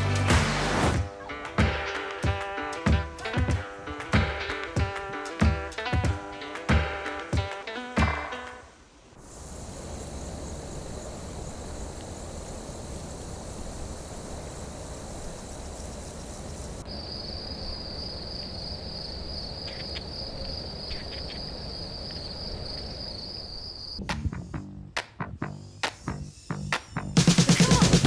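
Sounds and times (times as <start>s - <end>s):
insects calling: 8.1s - 24.0s
high fast-pulsing insect trill: 9.2s - 24.0s.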